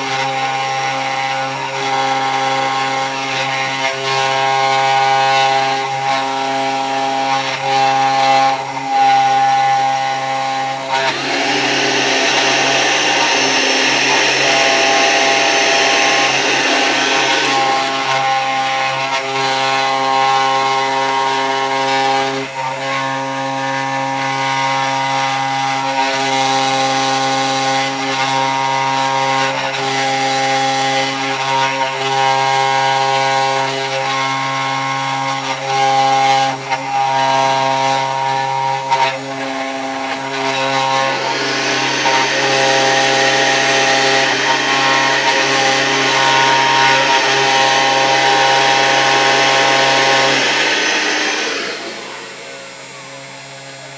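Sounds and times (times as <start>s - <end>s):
router bit cutting wood: 3.0s - 22.8s, 36.2s - 53.9s
spindle motor whine: 10.9s - 19.2s, 39.5s - 53.9s.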